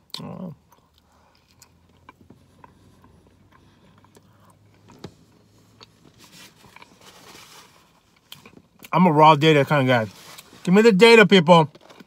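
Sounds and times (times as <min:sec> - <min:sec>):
chewing fries with mouth clicks: 0:00.0 - 0:05.0.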